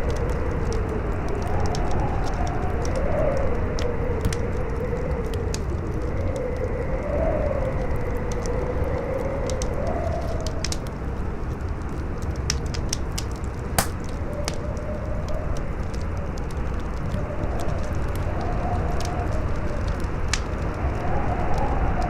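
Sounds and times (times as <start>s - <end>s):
campfire crackling and popping: 7.9s - 22.0s.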